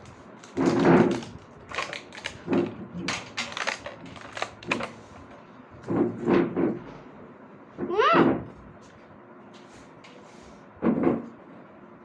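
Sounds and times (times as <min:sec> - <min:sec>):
wrapper crinkling and crackling: 0:00.0 - 0:05.0.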